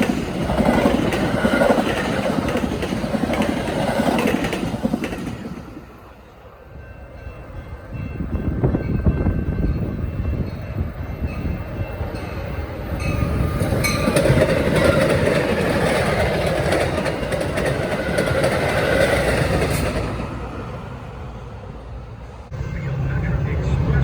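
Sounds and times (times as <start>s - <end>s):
train wheels clattering on rails: 0.0s - 6.0s, 7.0s - 20.9s.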